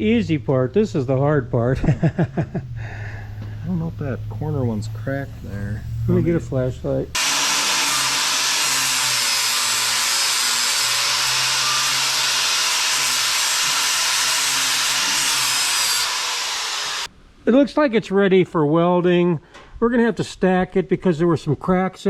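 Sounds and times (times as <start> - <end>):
power sander grinding steel: 7.1 - 17.1.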